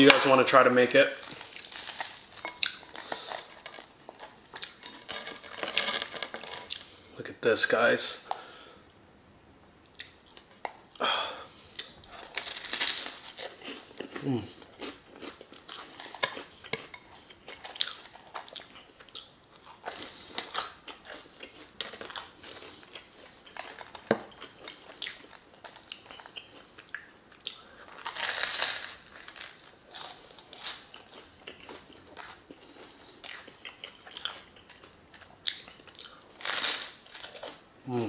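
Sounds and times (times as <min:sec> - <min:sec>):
chewing with wet mouth clicks: 0:24.3 - 0:27.6, 0:31.1 - 0:36.2.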